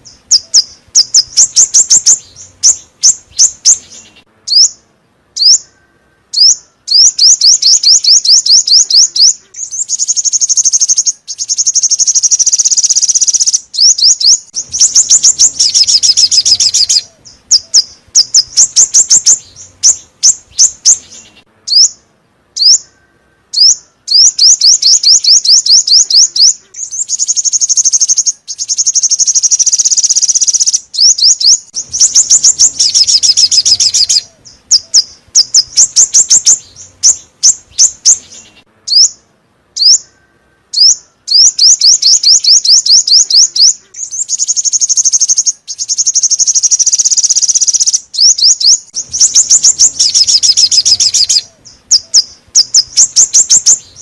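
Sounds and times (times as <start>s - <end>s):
bird song fast high trills: 0.0s - 54.0s.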